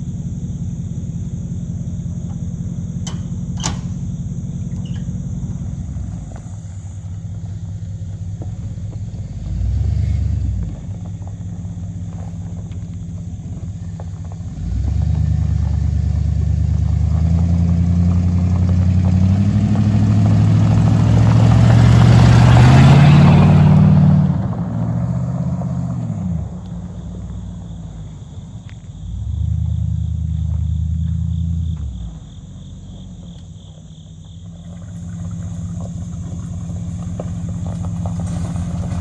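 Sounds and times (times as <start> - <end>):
truck engine idling and revving: 0.0 - 39.0.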